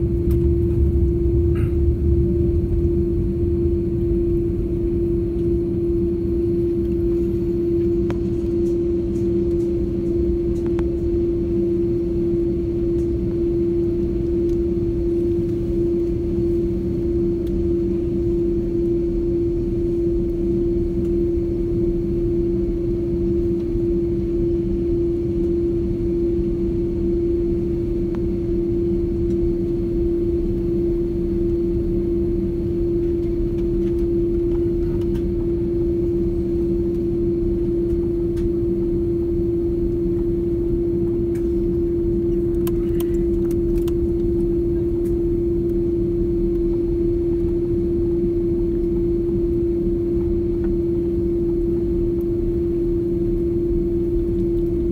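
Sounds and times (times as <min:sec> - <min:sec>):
jet cabin engine rumble: 0:00.0 - 0:54.9.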